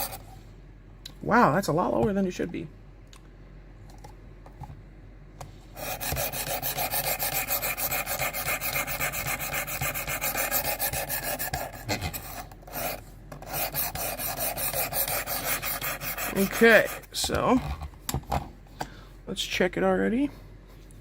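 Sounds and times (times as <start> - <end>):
knife rasping on sharpening stone: 5.8 - 17.1.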